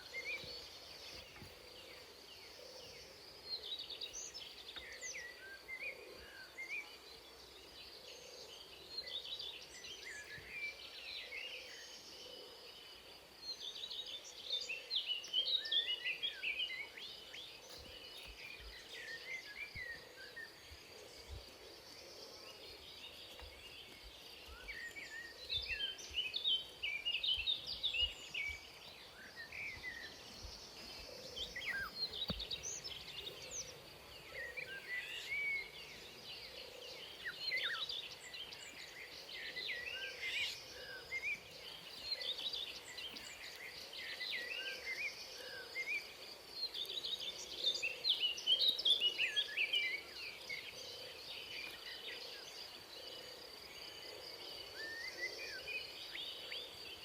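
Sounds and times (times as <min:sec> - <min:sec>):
birds chirping: 0:13.5 - 0:57.0.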